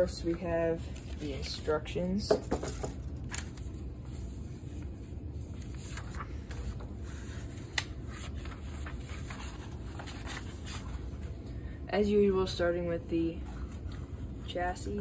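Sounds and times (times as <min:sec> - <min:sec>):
steady low hum: 0:00.0 - 0:15.0
paper pages rustling: 0:00.3 - 0:01.8, 0:02.5 - 0:11.4.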